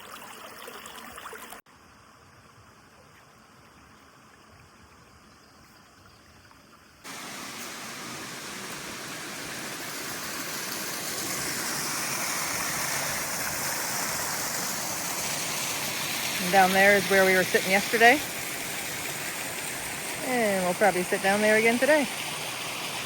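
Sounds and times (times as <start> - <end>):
waterfall and stream rushing: 7.0 - 23.0.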